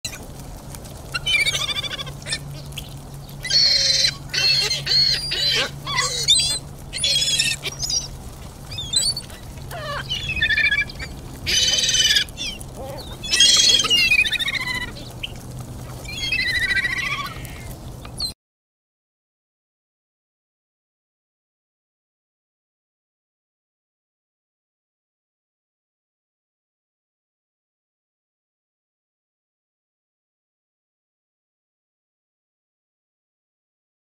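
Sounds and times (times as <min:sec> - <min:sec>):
harsh high bird calls: 0:01.1 - 0:18.4.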